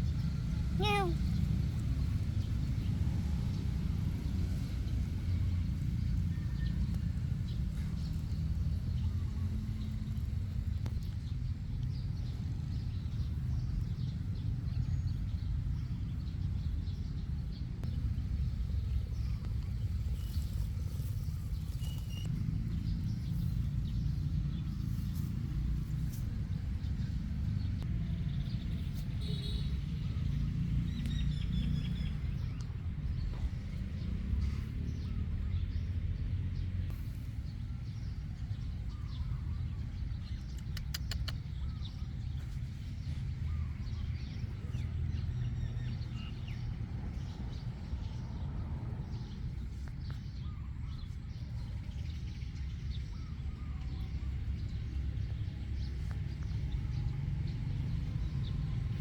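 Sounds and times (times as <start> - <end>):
low outdoor rumble: 0.0 - 59.0
faint bird chirps: 0.8 - 1.4, 19.0 - 22.4, 28.7 - 30.2, 37.0 - 46.6
quick ticks: 40.5 - 41.5.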